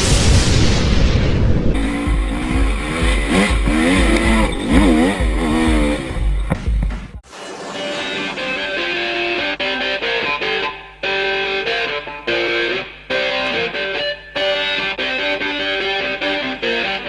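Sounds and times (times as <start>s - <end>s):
motorcycle engine revving: 1.8s - 7.0s.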